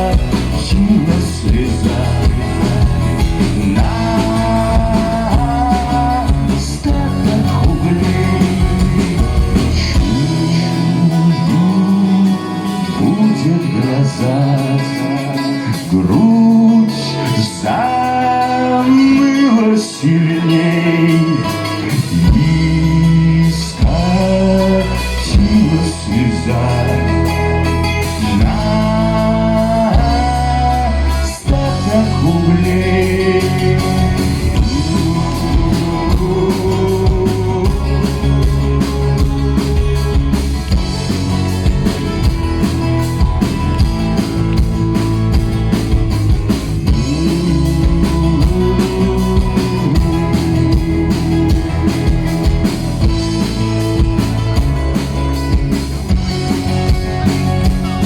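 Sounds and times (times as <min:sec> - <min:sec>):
live instrumental band music: 0:00.0 - 0:58.0.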